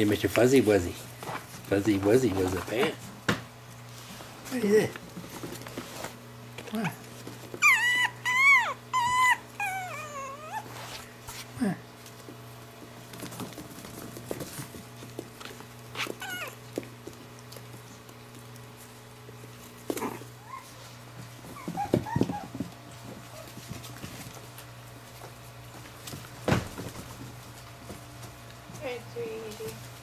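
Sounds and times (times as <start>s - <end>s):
puppies yipping and whining: 7.4s - 11.0s, 15.9s - 16.6s, 20.0s - 23.7s.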